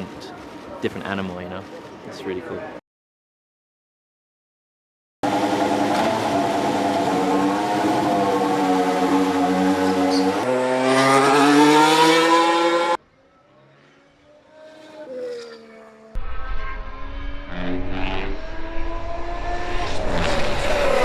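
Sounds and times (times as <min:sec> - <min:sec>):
racing car engine high revs: 0:05.2 - 0:13.0, 0:16.8 - 0:21.0
faint engine: 0:05.2 - 0:21.0.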